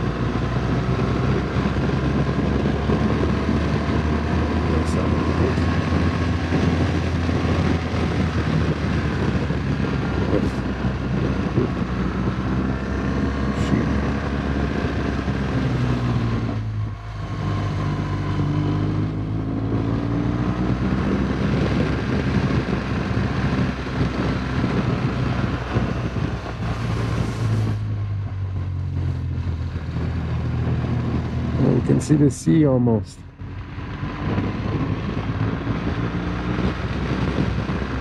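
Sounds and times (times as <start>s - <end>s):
motorcycle engine running: 0.0s - 32.3s, 33.2s - 38.0s
wind rushing over microphone: 0.0s - 38.0s.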